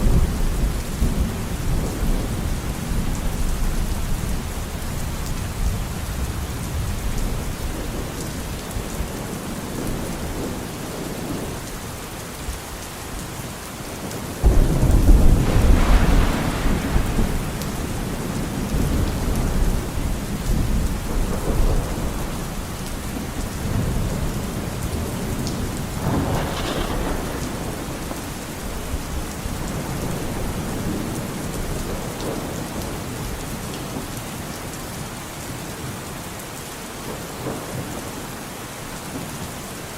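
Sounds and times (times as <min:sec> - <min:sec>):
thunder rumble: 0:00.0 - 0:09.2, 0:14.4 - 0:33.1
steady rain falling: 0:00.0 - 0:39.9.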